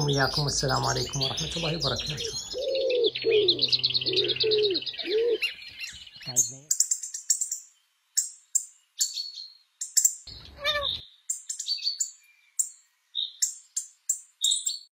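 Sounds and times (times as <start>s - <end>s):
lower sweeping bird call: 0.0s - 7.5s
small birds chirping: 0.0s - 14.9s.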